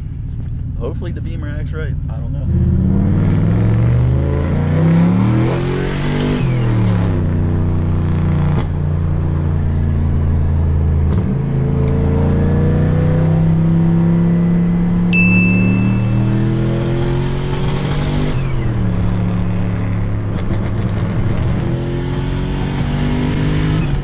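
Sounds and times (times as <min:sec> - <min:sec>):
short high beep: 0:15.2 - 0:17.0.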